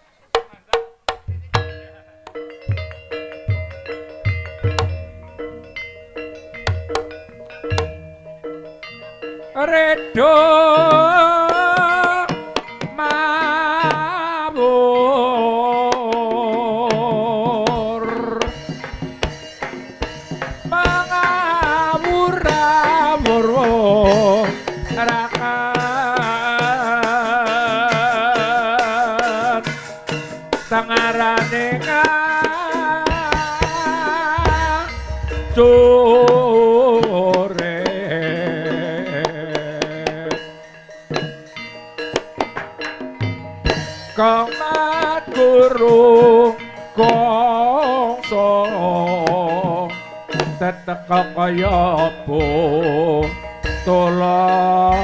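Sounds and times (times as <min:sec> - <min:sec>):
hand-drum strokes: 0:00.2 - 0:09.4, 0:10.2 - 0:40.5, 0:51.4 - 0:55.0
struck percussion: 0:00.3 - 0:09.5, 0:10.2 - 0:47.5, 0:49.1 - 0:55.0
gamelan accompaniment: 0:00.3 - 0:55.0
person singing long notes: 0:09.6 - 0:12.4, 0:13.0 - 0:18.6, 0:30.8 - 0:40.4, 0:50.8 - 0:55.0
person singing long wavering notes: 0:32.0 - 0:40.4
deep low note: 0:34.4 - 0:36.7.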